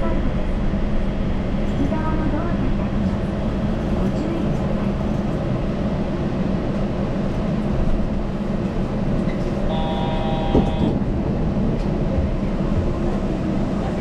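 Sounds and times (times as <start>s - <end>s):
train rolling drone: 0.0s - 14.0s
multi-note tone: 9.7s - 11.0s.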